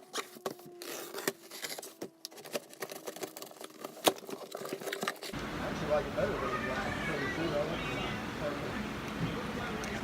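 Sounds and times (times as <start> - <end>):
packaging rustling and clicking: 0.0 - 5.4.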